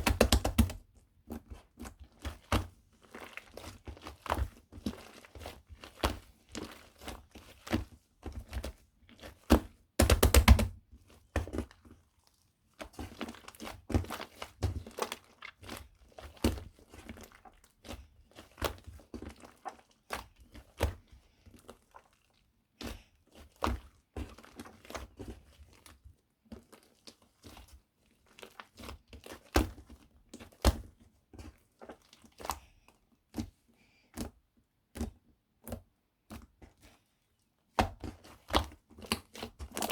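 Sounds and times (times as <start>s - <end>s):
shaving foam squishing: 0.0s - 32.8s, 37.8s - 39.9s.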